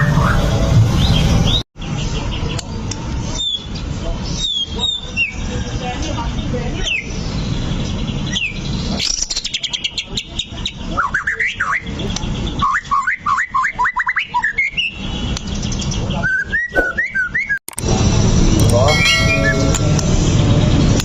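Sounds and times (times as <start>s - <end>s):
bird singing whistled notes: 3.4s - 3.8s, 8.2s - 17.6s.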